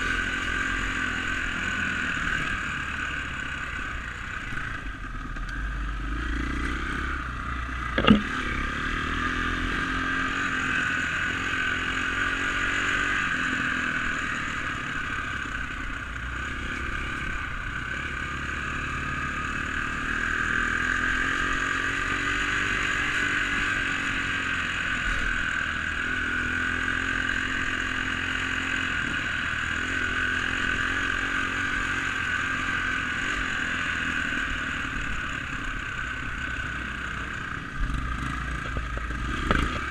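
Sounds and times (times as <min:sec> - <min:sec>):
dirt bike engine revving: 0:05.6 - 0:39.9
sharp knock: 0:07.9 - 0:08.3.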